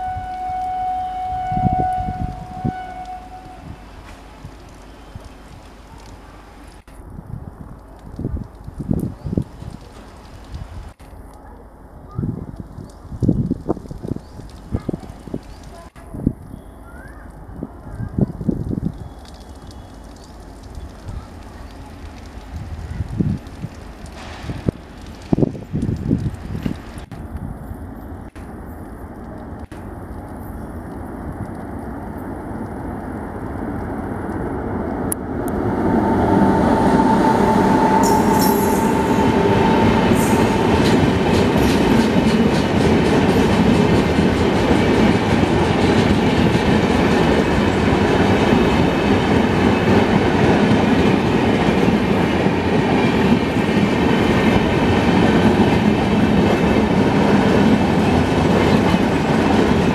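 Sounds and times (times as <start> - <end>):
train wheels on rails: 0.0 - 7.0, 12.1 - 59.9
high whine: 34.2 - 42.2.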